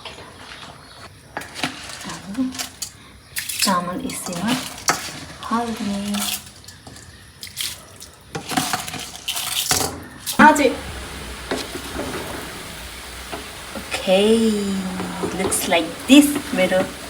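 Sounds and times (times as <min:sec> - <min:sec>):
rice splashing and stirring: 0:00.4 - 0:17.0.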